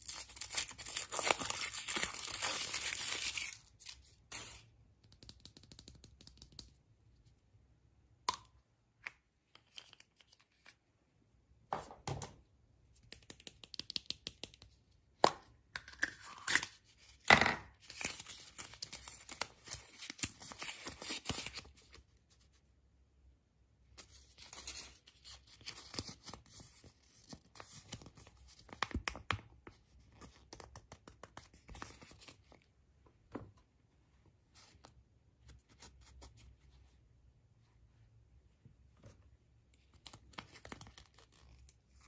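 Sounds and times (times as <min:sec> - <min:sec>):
packaging torn and crinkled: 0:00.0 - 0:04.5.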